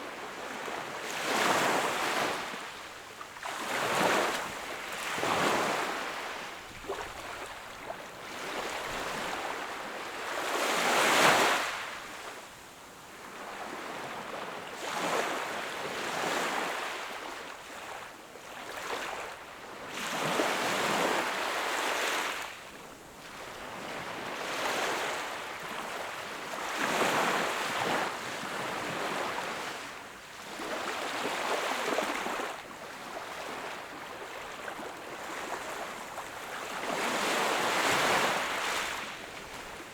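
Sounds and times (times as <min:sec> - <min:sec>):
sea waves breaking on shore: 0:26.7 - 0:39.9.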